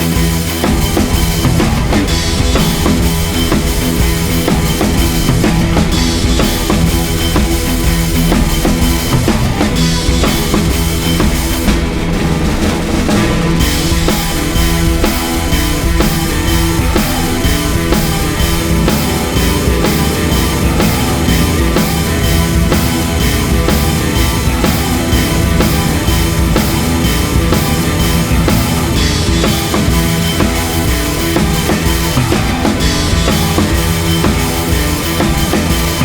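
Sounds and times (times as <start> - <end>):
drum kit beat: 0.0 - 36.0
rock music: 0.0 - 36.0.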